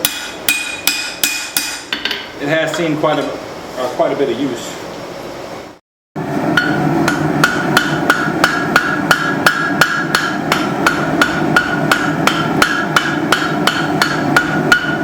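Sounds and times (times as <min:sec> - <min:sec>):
hammer ringing on anvil: 0:00.0 - 0:02.2, 0:06.6 - 0:15.0.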